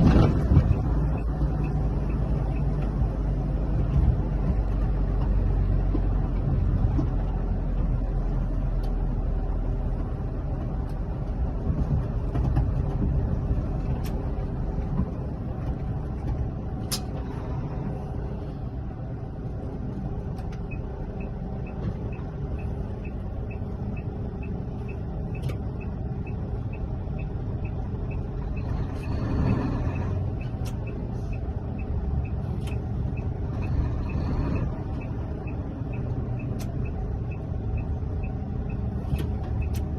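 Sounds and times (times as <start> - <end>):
diesel engine idling: 0.0 - 39.9
light regular ticking: 0.6 - 12.3, 20.0 - 39.9.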